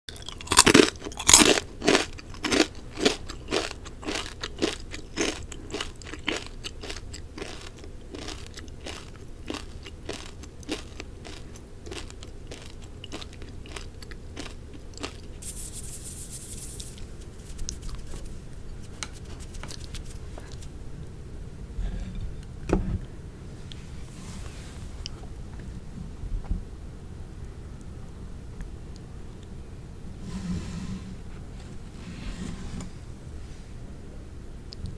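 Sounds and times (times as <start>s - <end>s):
crunchy food chewing: 0.1s - 20.7s.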